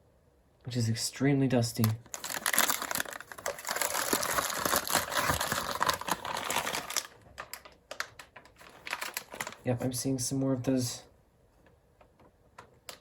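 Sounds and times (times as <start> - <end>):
plastic packaging crinkling: 1.7 - 9.8.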